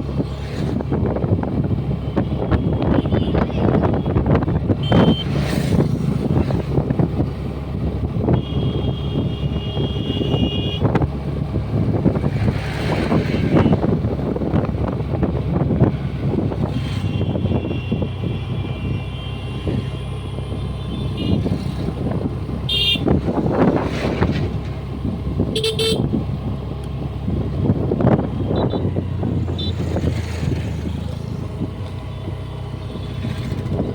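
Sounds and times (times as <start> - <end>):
road and wind noise: 0.0 - 33.9
vehicle horn: 2.1 - 5.4, 8.3 - 10.9, 16.7 - 21.7, 22.6 - 23.2, 25.5 - 26.1, 28.4 - 29.9.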